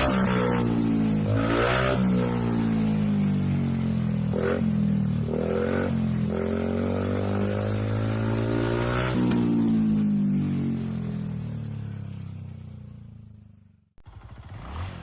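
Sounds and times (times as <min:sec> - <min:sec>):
scooter engine idling: 0:10.6 - 0:15.0.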